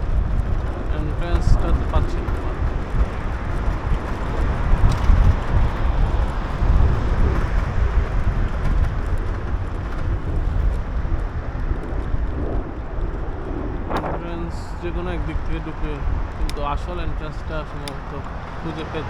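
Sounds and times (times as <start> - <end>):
passing traffic: 0.0 - 19.0
road noise: 0.0 - 19.0
wind rumble: 0.0 - 19.0.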